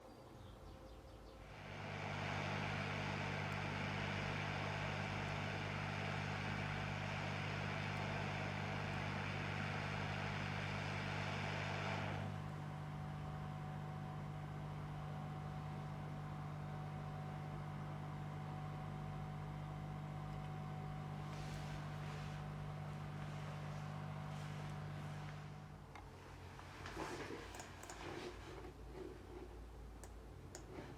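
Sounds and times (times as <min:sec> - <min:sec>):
machine hum: 0:00.0 - 0:30.9.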